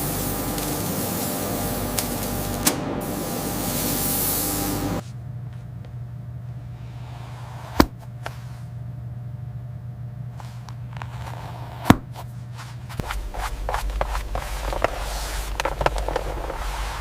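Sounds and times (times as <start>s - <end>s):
small ticks and crackles: 0.0s - 2.6s
factory low hum: 0.0s - 17.0s
deep rumble: 12.3s - 17.0s.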